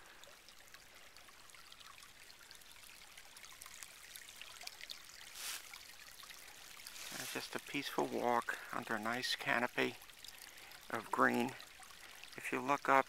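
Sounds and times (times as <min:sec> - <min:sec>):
small stream trickling: 0:00.0 - 0:13.0.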